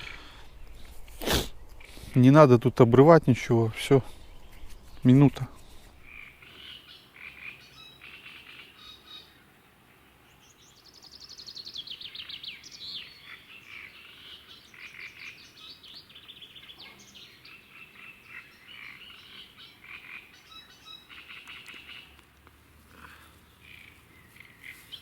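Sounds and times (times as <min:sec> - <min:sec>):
songbirds singing: 0:03.0 - 0:25.0
frogs calling: 0:06.0 - 0:09.4, 0:12.0 - 0:22.3, 0:23.0 - 0:25.0.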